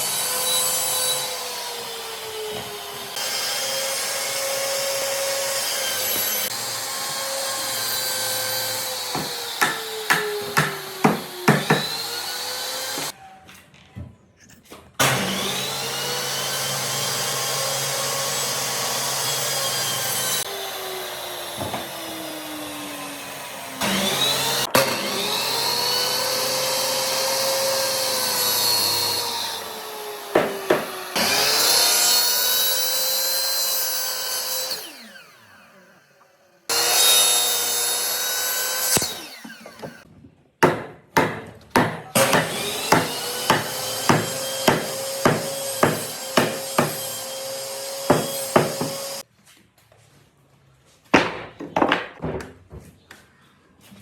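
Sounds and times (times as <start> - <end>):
power tool motor cutting wood: 0.0 - 13.2, 15.0 - 40.1, 42.2 - 49.2.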